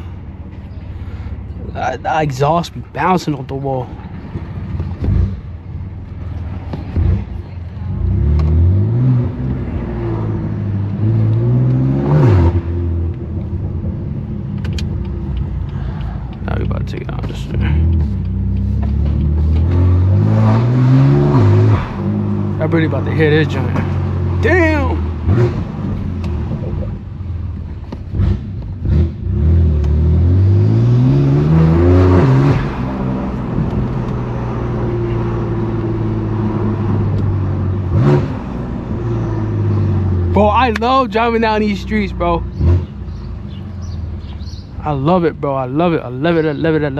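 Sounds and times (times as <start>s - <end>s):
car engine pulling through gears: 0.0s - 46.9s
sharp clicks: 14.5s - 19.7s.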